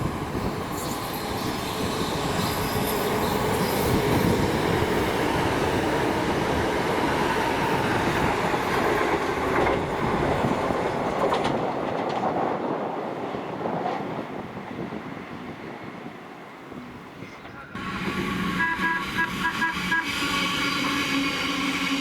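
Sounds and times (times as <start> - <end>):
train wheels rumbling on rail: 0.0 - 22.0
clacks over rail joints: 8.1 - 14.3.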